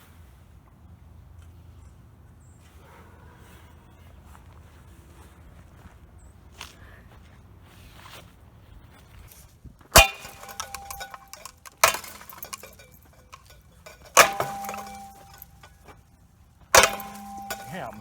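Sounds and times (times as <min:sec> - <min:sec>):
metallic clinking ring: 0:10.0 - 0:16.0, 0:16.8 - 0:18.0
strikes on ceiling fan: 0:16.8 - 0:18.0.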